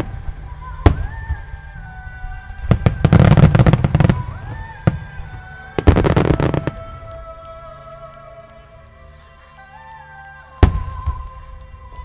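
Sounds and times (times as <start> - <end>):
fireworks bangs and crackling: 0.0 - 2.0, 2.6 - 7.6, 10.6 - 11.4.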